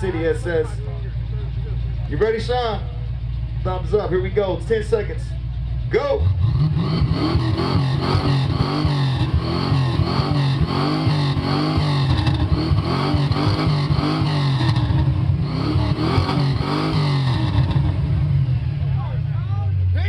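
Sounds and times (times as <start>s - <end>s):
car engine revving hard: 6.2s - 18.8s.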